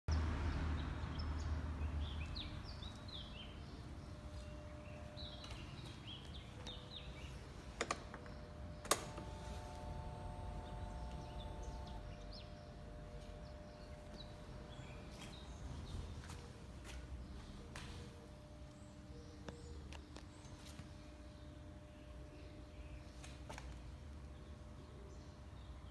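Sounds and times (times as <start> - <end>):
small birds chirping: 0.8 - 18.1.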